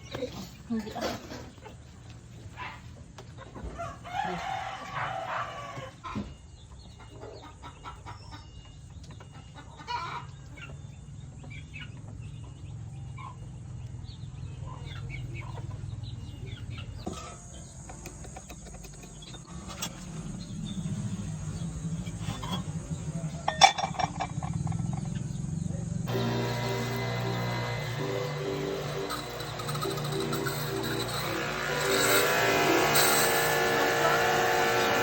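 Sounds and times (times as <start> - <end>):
chickens clucking: 0.0 - 32.9
rooster crowing: 3.7 - 6.1.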